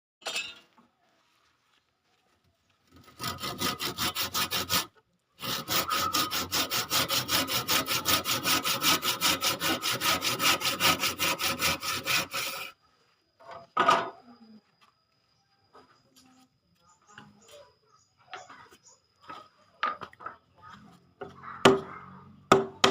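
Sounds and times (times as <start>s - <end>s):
hand saw cutting wood: 3.0s - 12.8s.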